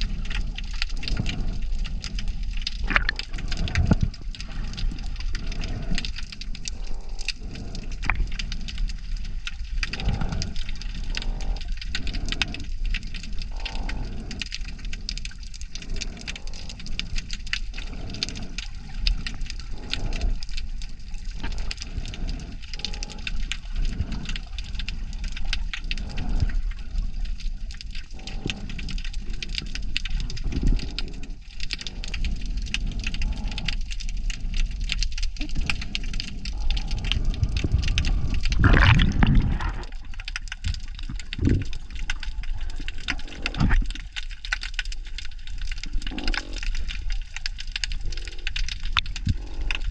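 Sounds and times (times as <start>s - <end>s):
water surges and thumps: 0.0s - 32.1s, 34.3s - 49.9s
dense underwater crackle: 0.0s - 49.9s
water gushing swell: 36.9s - 43.9s.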